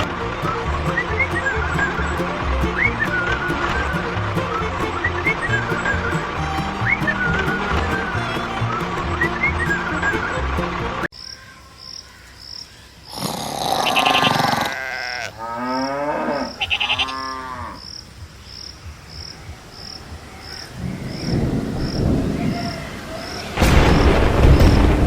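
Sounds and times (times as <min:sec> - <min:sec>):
moo-like calls: 0:13.6 - 0:17.8.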